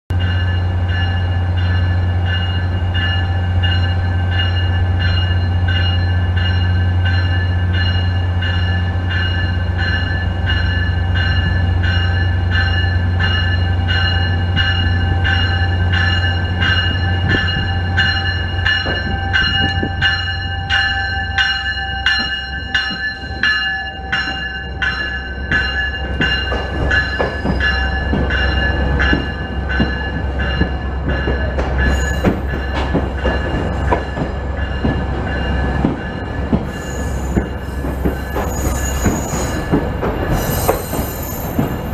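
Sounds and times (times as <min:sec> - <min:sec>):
train bell ringing: 0:00.1 - 0:41.9
train wheels knocking over track: 0:25.6 - 0:41.9.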